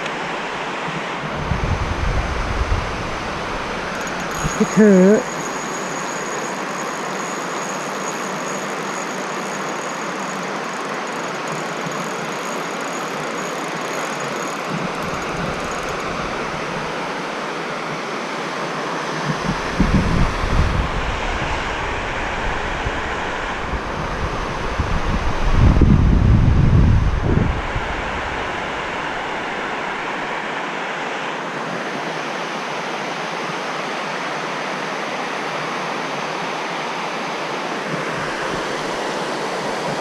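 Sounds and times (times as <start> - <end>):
stream water flowing: 0.0 - 25.4, 27.4 - 40.0
wind buffeting microphone: 1.2 - 4.6, 19.3 - 30.1.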